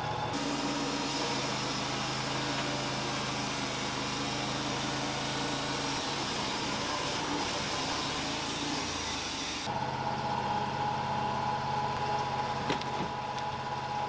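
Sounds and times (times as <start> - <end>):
sawmill engine running: 0.0 - 14.0
band saw blade cutting log: 0.3 - 9.7.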